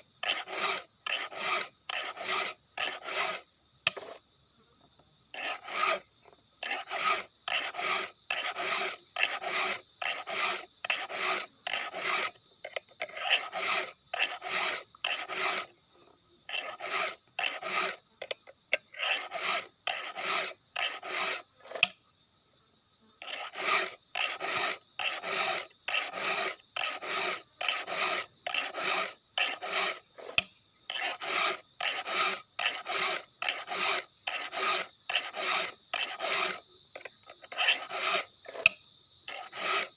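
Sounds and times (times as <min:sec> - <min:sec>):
file rasping on chainsaw chain: 0:00.0 - 0:04.2, 0:05.3 - 0:15.8, 0:16.4 - 0:22.0, 0:23.2 - 0:39.9.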